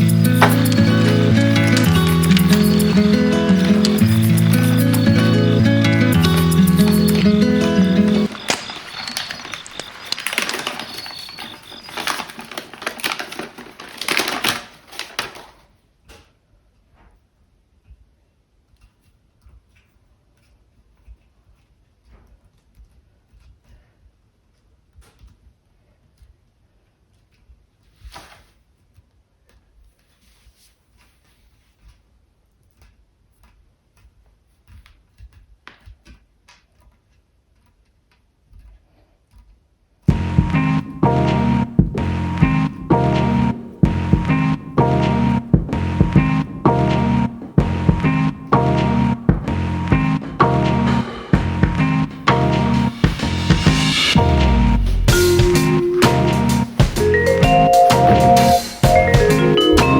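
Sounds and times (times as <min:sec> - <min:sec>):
hard objects clicking and knocking: 0:00.0 - 0:15.6.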